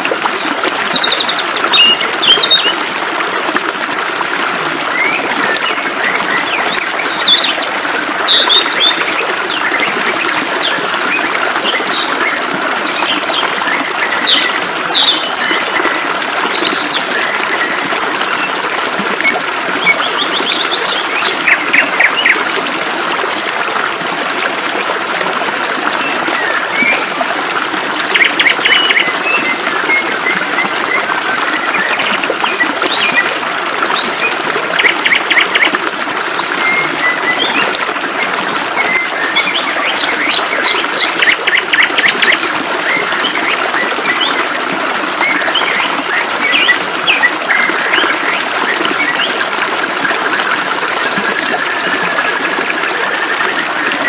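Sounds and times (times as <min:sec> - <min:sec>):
flowing water hiss: 0:48.3 - 0:51.8.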